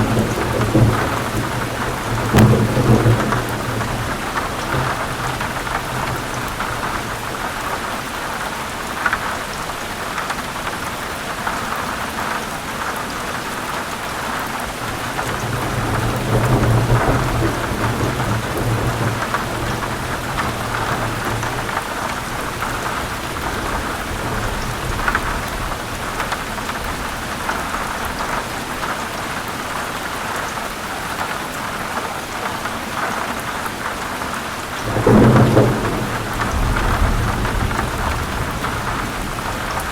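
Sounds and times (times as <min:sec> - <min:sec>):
low rumble of thunder: 0:00.0 - 0:07.7, 0:14.8 - 0:28.4, 0:34.7 - 0:39.9
heavy rain falling: 0:00.0 - 0:39.9.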